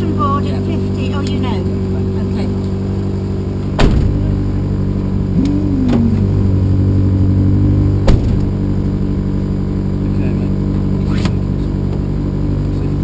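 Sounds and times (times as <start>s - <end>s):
car engine running: 0.0s - 13.0s
short whine: 2.5s - 11.9s
sharp knock: 3.8s - 4.3s, 8.0s - 8.6s.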